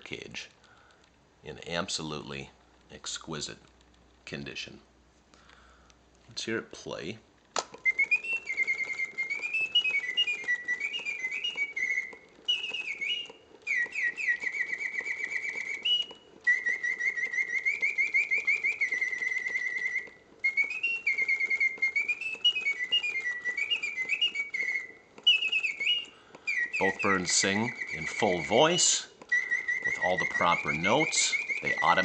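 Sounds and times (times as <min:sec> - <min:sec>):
mechanical bird whistle trilling: 0:07.8 - 0:32.0.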